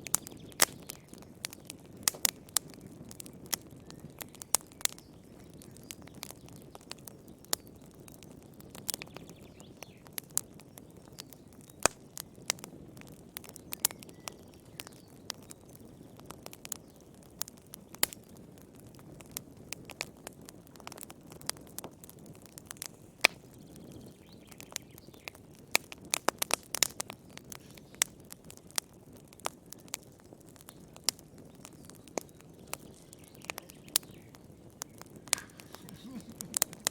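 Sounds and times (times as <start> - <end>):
wood fire crackling and popping: 0.0 - 36.9
flames hissing: 25.6 - 36.9.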